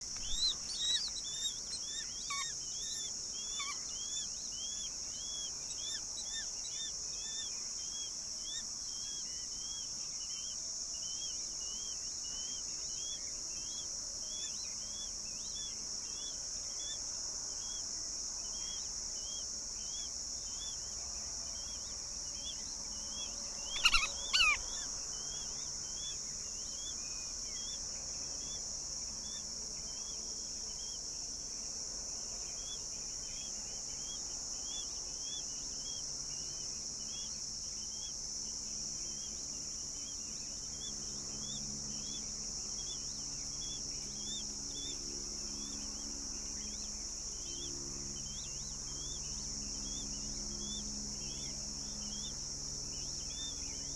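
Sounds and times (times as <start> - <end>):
louder bird calls: 0.0 - 17.0, 22.4 - 27.8
high insect drone: 0.0 - 53.9
small bird chirping: 0.0 - 53.9.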